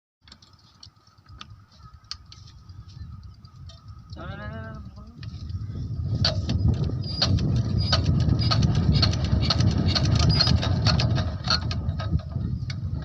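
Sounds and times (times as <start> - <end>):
diesel pump engine running: 6.2 - 13.0.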